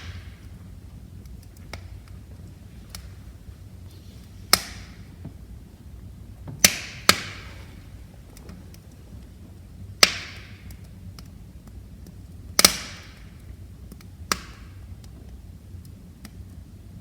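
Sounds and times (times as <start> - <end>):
fire crackling ticks: 0.0 - 17.0
low rumble of flames: 0.0 - 17.0
wood fire popping: 0.0 - 17.0.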